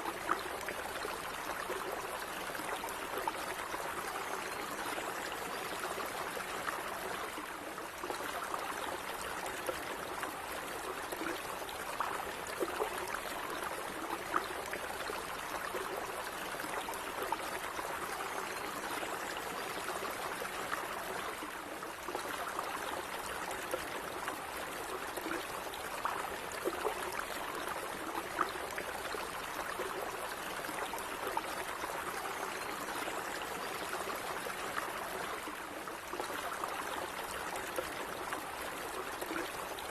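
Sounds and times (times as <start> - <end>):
stream trickling: 0.0 - 39.9.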